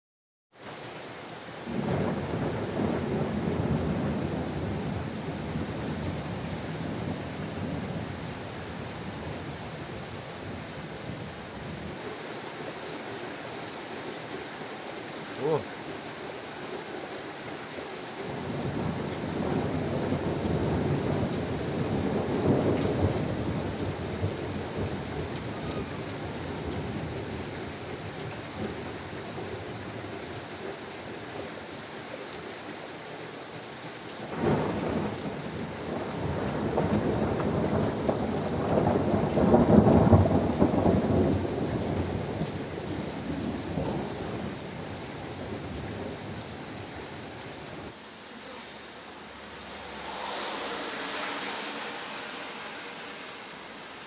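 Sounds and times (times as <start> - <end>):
steady rain: 0.5 - 54.0
thunder rolling: 18.3 - 28.9, 34.3 - 48.0.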